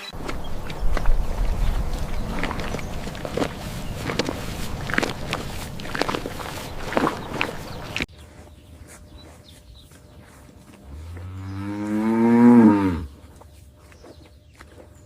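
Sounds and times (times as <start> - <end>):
cow mooing: 10.9 - 13.1.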